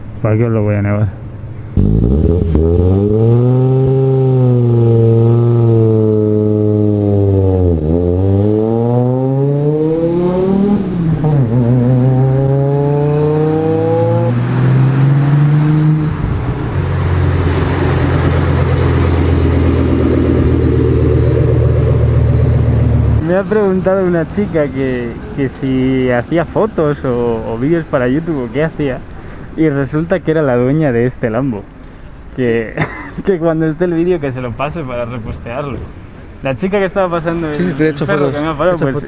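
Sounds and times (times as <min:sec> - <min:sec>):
car engine accelerating: 0:01.7 - 0:25.2.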